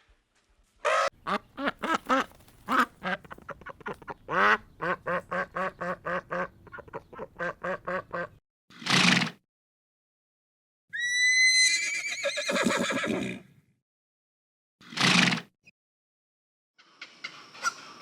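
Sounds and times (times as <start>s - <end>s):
ducks quacking: 0.8s - 8.4s.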